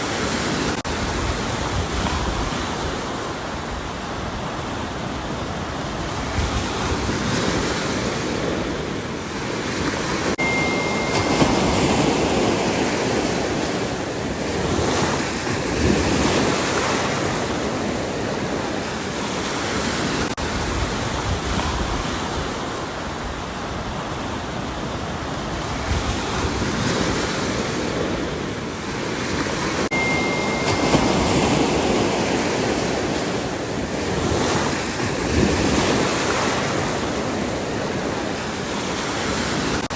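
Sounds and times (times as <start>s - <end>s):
ocean waves breaking on shore: 0.0s - 39.9s
brief high steady tone: 10.4s - 13.5s, 29.9s - 32.6s.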